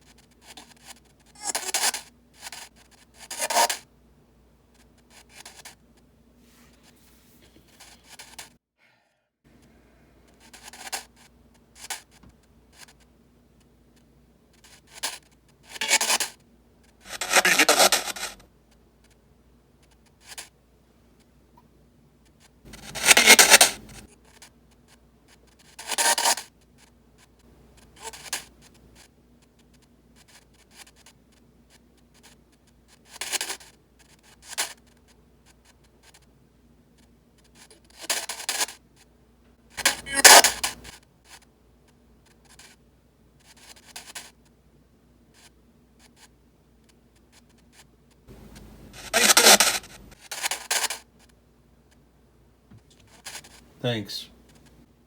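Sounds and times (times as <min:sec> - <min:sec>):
faint steady hum: 0:08.9 - 0:15.6, 0:18.0 - 0:25.6, 0:44.3 - 0:50.2
radio static bursts: 0:17.1 - 0:18.4, 0:22.7 - 0:24.0, 0:39.8 - 0:40.9, 0:48.3 - 0:50.1.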